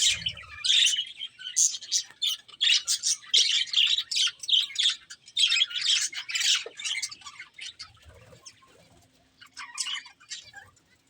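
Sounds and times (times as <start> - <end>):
budgerigars chirping: 0.0 - 8.0.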